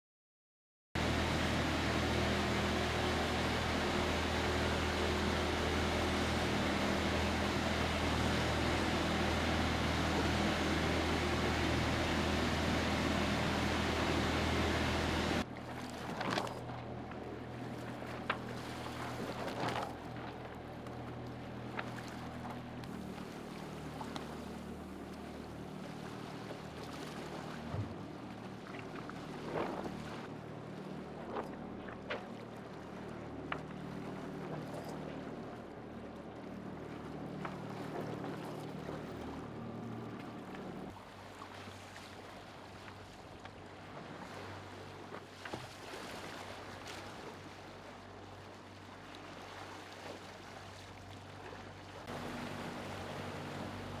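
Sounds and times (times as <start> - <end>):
steady low hum: 1.0 - 41.4, 42.1 - 54.0
water rushing along hull: 1.0 - 54.0
wind: 1.0 - 54.0
sharp knocks from boat: 15.6 - 23.3, 26.7 - 30.3.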